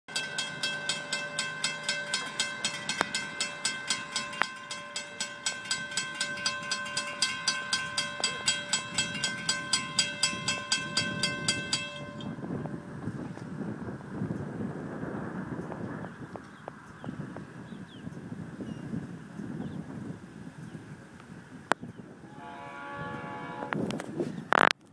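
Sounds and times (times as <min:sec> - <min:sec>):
grade crossing bell ringing: 0:00.1 - 0:13.4, 0:22.2 - 0:24.1
approaching train rumble: 0:00.1 - 0:24.7.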